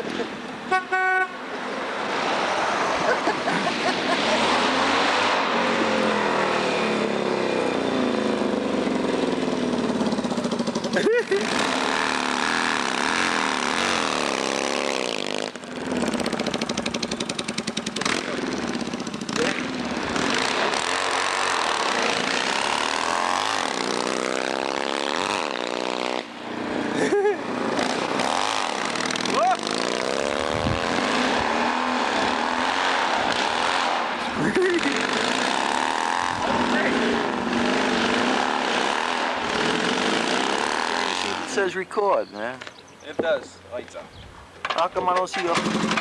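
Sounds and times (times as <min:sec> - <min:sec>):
motorbike engine running: 0:05.7 - 0:26.4, 0:27.0 - 0:41.8, 0:45.4 - 0:46.0.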